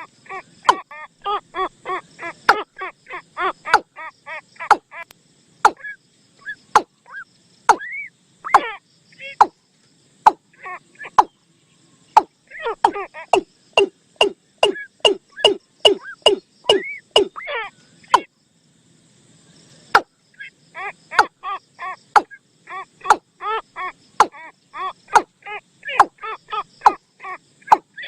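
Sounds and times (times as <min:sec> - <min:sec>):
bird call of short arched notes: 0:12.1 - 0:18.3.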